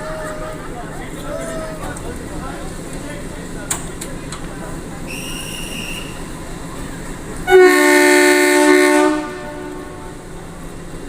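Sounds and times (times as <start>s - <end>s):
running train noise: 0.0s - 11.0s
train horn two-note chord: 7.5s - 10.2s.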